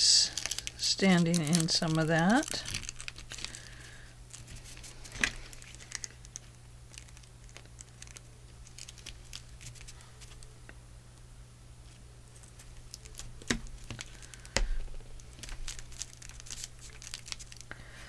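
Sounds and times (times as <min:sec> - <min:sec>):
steady low hum: 0:00.0 - 0:18.0
paper rustling: 0:00.3 - 0:06.1, 0:15.3 - 0:17.6.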